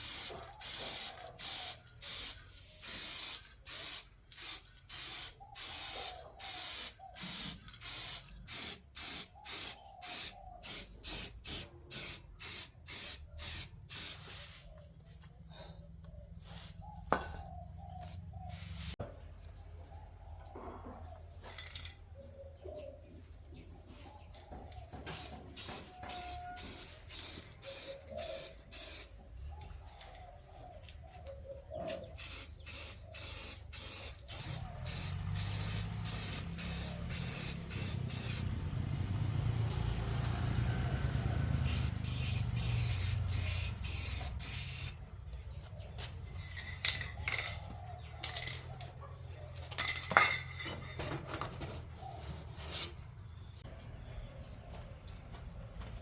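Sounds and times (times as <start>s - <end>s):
short spraying bursts: 0.0s - 14.8s, 25.1s - 29.2s, 32.2s - 38.6s, 41.6s - 45.0s.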